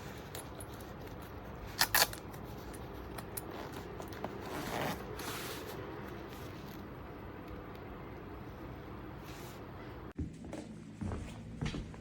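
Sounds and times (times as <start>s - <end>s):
boot zipper rasp: 3.7s - 5.5s.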